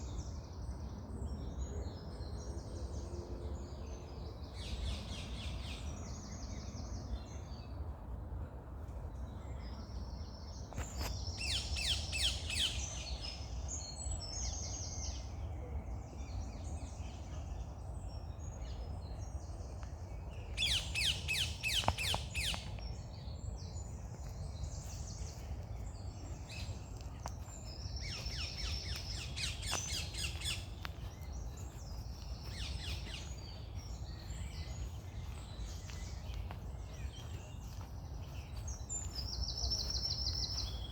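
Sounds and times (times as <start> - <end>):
birds singing and calling: 16.2 - 40.9
steady low rumble: 21.6 - 40.9.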